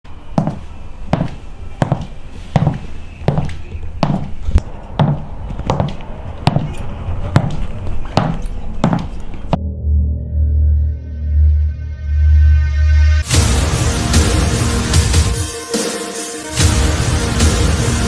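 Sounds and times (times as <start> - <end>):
high-heeled boots footsteps: 0.4 - 9.6.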